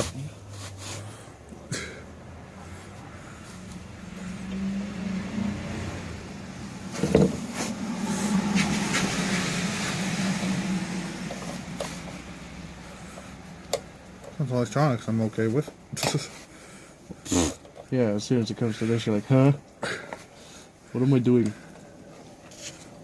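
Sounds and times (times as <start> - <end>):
vehicle engine hum: 0.0 - 23.0.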